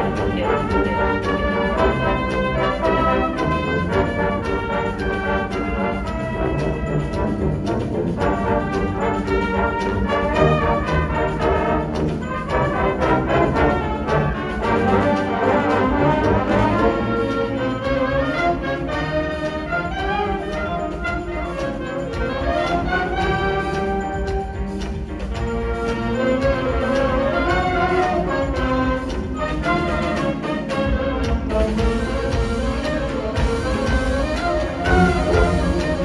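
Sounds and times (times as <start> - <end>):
wind ensemble playing: 0.0 - 36.0.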